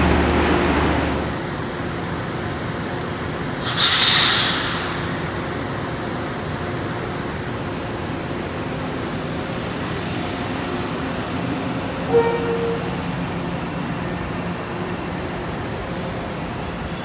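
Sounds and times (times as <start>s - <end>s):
train wheels rumbling: 0.0s - 17.0s
short train horn toot: 12.1s - 13.0s.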